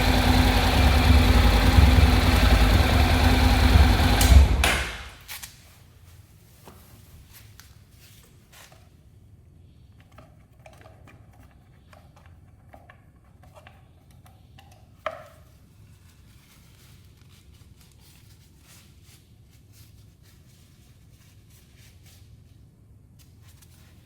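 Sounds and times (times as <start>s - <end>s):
low steady hum: 0.0s - 6.5s.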